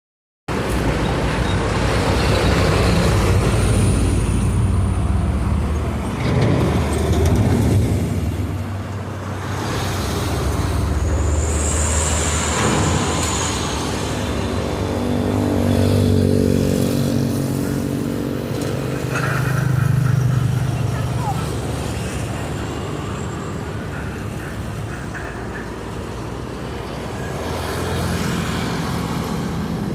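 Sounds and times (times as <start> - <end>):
diesel locomotive humming: 0.5 - 29.9
train wagons rumbling on track: 0.5 - 29.9
high-pitched squeal: 9.7 - 16.1.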